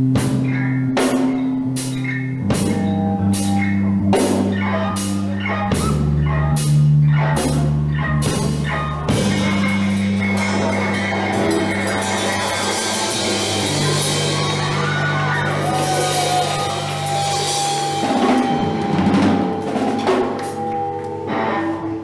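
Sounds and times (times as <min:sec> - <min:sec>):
heavy drumming: 0:00.0 - 0:21.9
punk rock band playing live: 0:00.0 - 0:22.0
high ringing note: 0:09.6 - 0:22.0.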